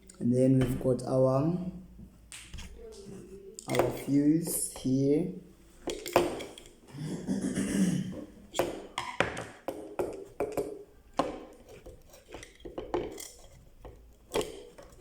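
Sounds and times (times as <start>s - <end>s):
plastic and metal parts clicking: 10.1s - 15.0s.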